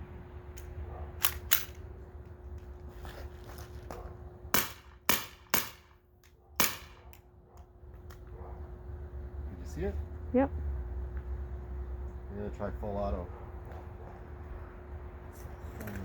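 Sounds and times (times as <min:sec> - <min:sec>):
bb pistol shots: 0:01.2 - 0:01.8, 0:04.5 - 0:06.0, 0:06.6 - 0:07.2.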